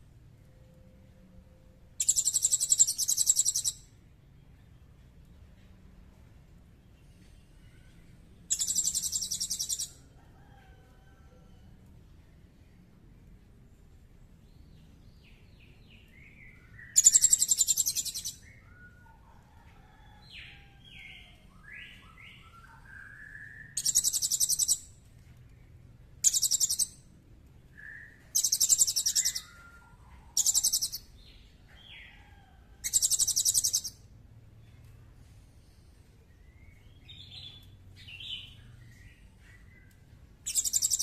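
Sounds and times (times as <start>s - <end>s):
bird chirps and whistled slurs: 2.0s - 3.8s, 8.5s - 9.9s, 16.8s - 18.9s, 26.2s - 26.9s, 27.8s - 31.0s, 40.5s - 41.0s.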